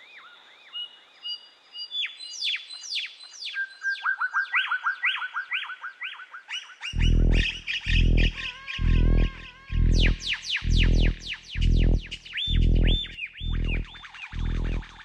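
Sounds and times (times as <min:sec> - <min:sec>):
loud guitar music: 0:07.0 - 0:15.0.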